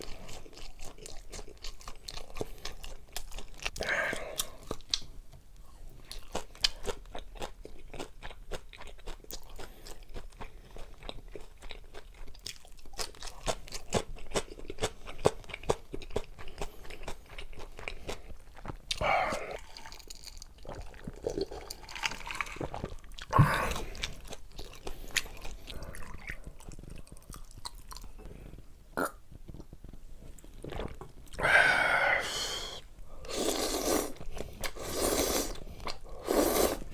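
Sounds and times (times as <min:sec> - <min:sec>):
crunchy chewing: 0:00.0 - 0:05.1, 0:06.1 - 0:28.7
loud mouth sounds: 0:18.9 - 0:19.7, 0:23.3 - 0:24.0, 0:29.0 - 0:29.2, 0:31.4 - 0:36.9.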